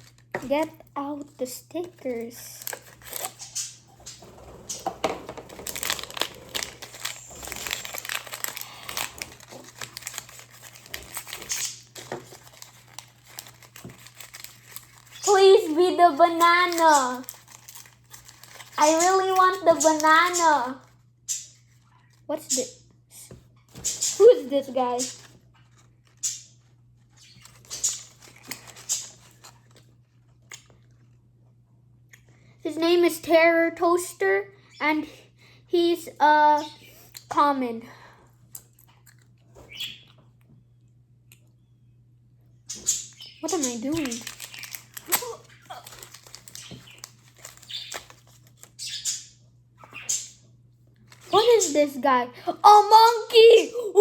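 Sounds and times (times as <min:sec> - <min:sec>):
plastic wrapping crinkling: 0:00.0 - 0:20.4, 0:27.0 - 0:30.3, 0:42.8 - 0:49.0.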